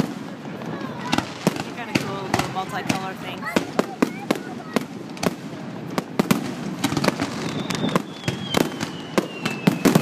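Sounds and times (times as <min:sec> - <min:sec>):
fireworks bangs and crackles: 0:00.0 - 0:10.0
faint falling whistle: 0:07.4 - 0:10.0.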